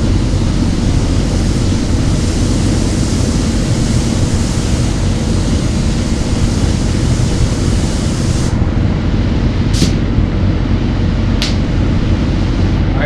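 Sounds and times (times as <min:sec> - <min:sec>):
spray gun hissing: 0:00.0 - 0:08.7, 0:09.6 - 0:10.1
low steady rumble: 0:00.0 - 0:13.0.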